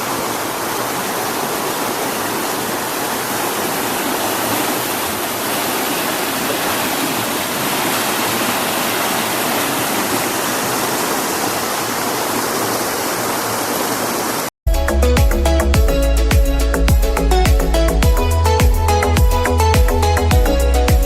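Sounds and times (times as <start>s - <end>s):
stream water rushing: 0.0s - 14.5s.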